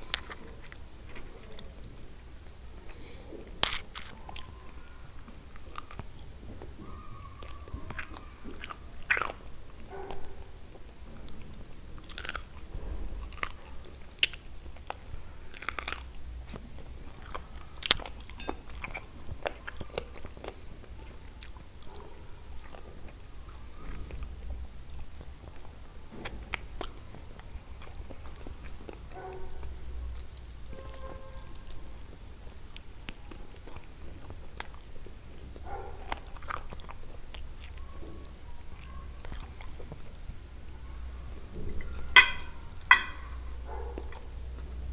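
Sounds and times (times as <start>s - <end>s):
person chewing and biting food: 11.9s - 16.6s.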